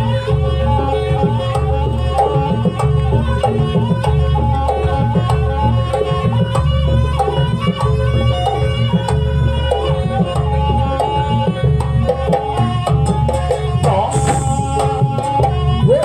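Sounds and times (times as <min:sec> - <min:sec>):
hand drums fast rhythm: 0:00.0 - 0:16.0
held drone note: 0:13.8 - 0:16.0.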